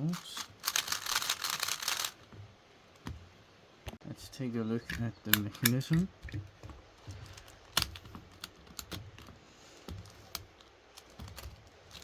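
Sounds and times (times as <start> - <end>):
plastic puzzle cube clicking: 0.4 - 2.2.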